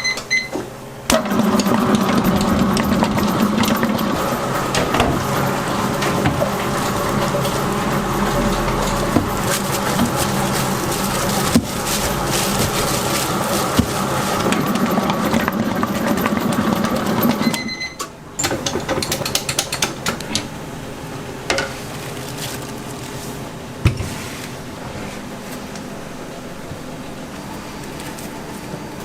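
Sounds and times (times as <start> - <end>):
machine motor humming: 1.1 - 17.7.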